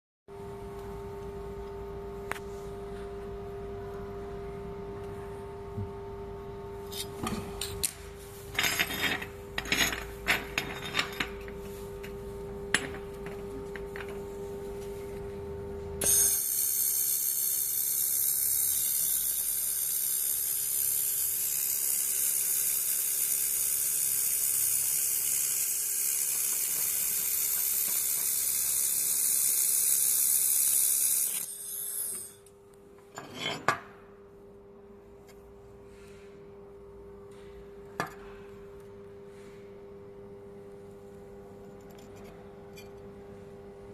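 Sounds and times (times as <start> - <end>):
welding hiss: 16.0 - 31.9.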